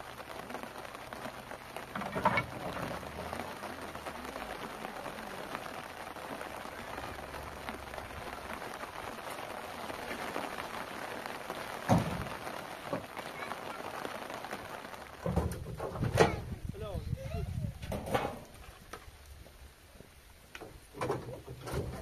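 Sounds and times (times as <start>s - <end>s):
steady rain hiss: 0.0s - 22.0s
firewood clattering: 1.8s - 3.4s, 11.8s - 13.2s, 15.1s - 16.8s, 17.7s - 19.2s, 20.5s - 22.0s.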